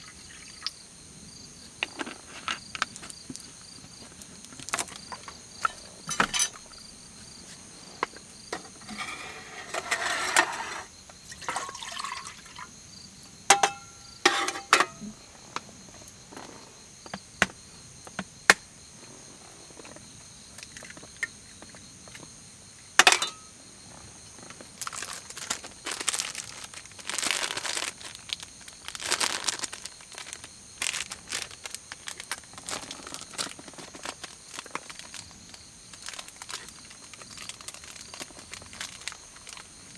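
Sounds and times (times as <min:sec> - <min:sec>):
night insects chirring: 0:00.0 - 0:39.9
rustling handling noise: 0:01.8 - 0:12.1, 0:13.5 - 0:17.6, 0:24.4 - 0:39.7.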